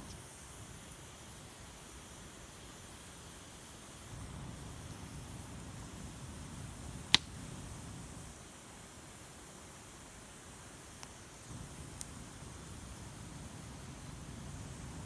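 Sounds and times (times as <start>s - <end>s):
wood fire burning: 0.0s - 15.0s
firewood popping: 6.8s - 7.6s.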